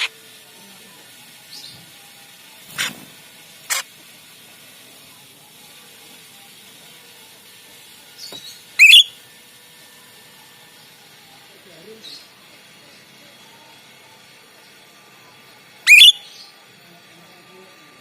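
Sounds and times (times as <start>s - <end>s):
starling calls: 0.0s - 0.2s, 2.7s - 3.0s, 3.6s - 3.9s, 8.2s - 9.2s, 15.8s - 16.5s.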